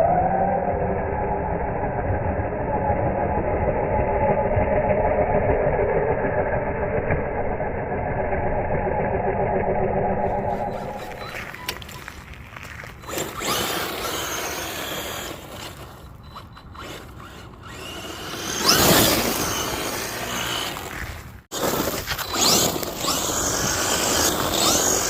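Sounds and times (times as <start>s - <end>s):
electric motor whining: 10.0s - 12.0s, 12.9s - 25.0s
scrabbling noise: 10.2s - 25.0s.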